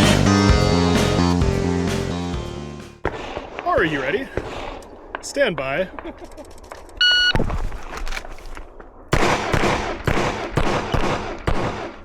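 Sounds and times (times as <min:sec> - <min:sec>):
pistol shots: 0:03.0 - 0:03.6, 0:09.1 - 0:12.0
short electronic beep: 0:07.0 - 0:07.4.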